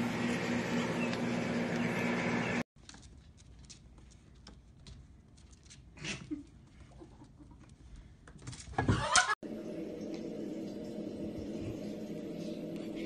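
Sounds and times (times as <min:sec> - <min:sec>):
kitten paws scuffling on wood: 0:02.8 - 0:06.0.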